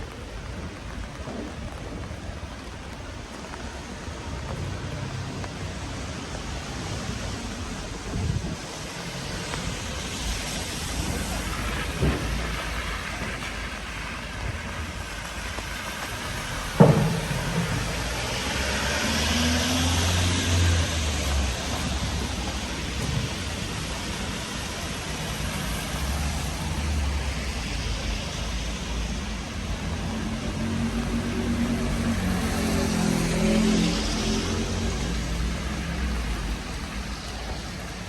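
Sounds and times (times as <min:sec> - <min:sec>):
rain falling on street: 0:00.0 - 0:38.0
vehicle hissing on wet road: 0:00.0 - 0:38.0
dull knocks: 0:16.7 - 0:19.8.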